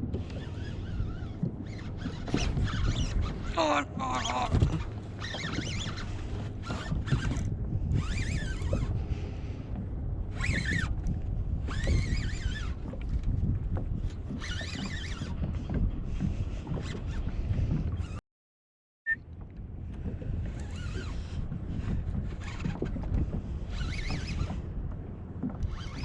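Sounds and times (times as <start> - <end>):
wind buffeting microphone: 0.0 - 18.2, 19.2 - 26.0
high wavering squeaks: 0.3 - 7.4, 8.0 - 8.9, 23.7 - 24.6.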